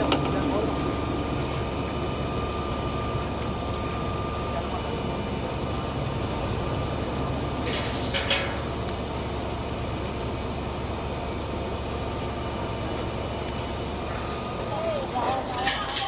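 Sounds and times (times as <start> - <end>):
machine engine droning: 0.0 - 16.0
sharp metallic clinks: 13.6 - 16.0.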